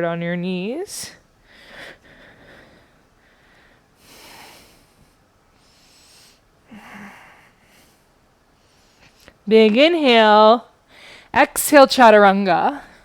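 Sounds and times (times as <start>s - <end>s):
woman breathing: 1.1s - 9.4s, 10.8s - 11.4s.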